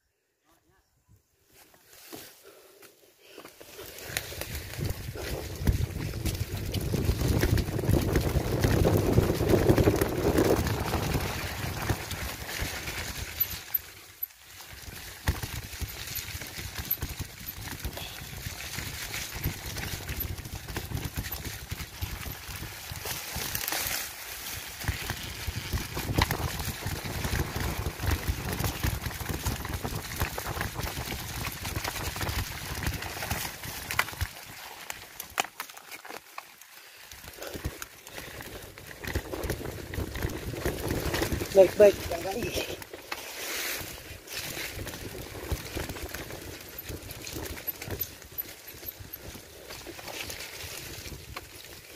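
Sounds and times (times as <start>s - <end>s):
tyres on dirt and grass: 0.4s - 51.9s
mountain bike rattling: 3.6s - 51.9s
wind on microphone: 4.6s - 13.0s, 24.8s - 33.4s.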